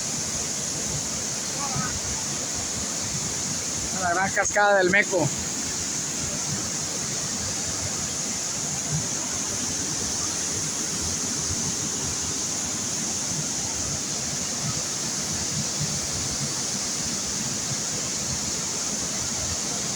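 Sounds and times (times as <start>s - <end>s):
waterfall pouring: 0.0s - 15.3s.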